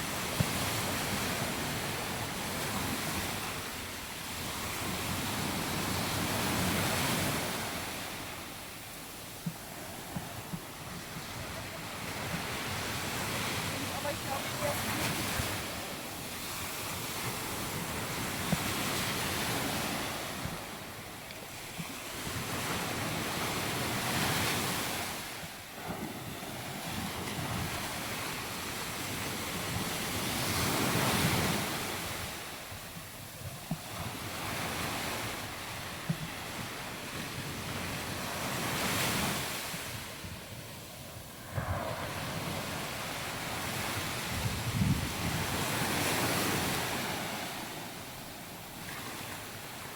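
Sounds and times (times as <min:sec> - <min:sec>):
surf breaking on beach: 0:09.4 - 0:20.8, 0:33.7 - 0:49.9
wind buffeting microphone: 0:21.8 - 0:49.8.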